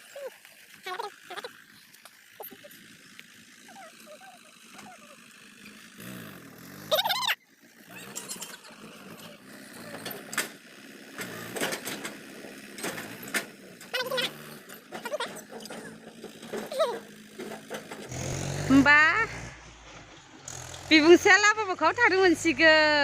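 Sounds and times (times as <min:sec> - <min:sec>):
vehicle engine running with clatter: 0:00.0 - 0:23.0.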